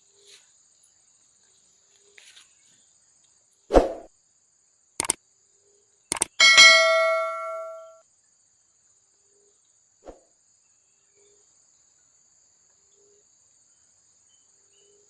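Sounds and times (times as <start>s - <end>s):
high insect trill: 0.0s - 15.0s
sharp clicks: 6.1s - 6.5s
metal object clanging: 6.4s - 8.0s.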